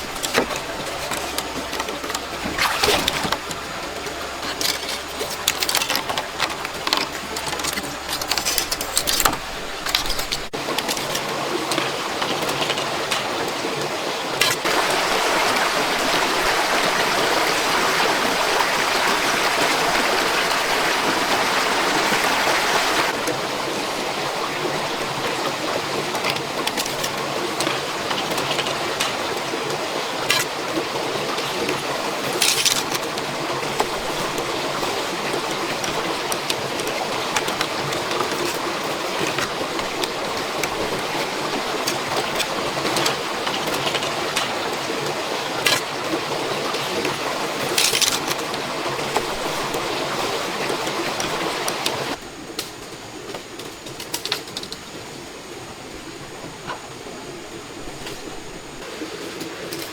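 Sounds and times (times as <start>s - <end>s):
heavy rain hiss: 12.8s - 59.9s.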